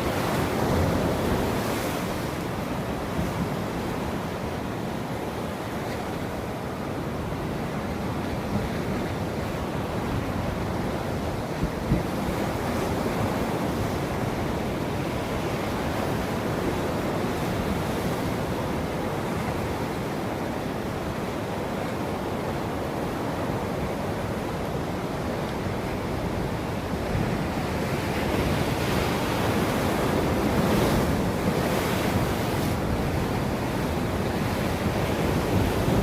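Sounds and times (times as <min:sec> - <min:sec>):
ocean surf on shore: 0:00.0 - 0:36.0.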